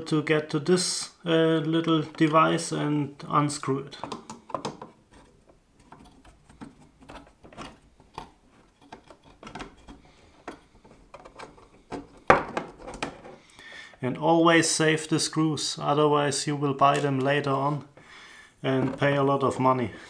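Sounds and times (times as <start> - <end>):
clicks and scrapes of small parts: 4.0 - 13.5.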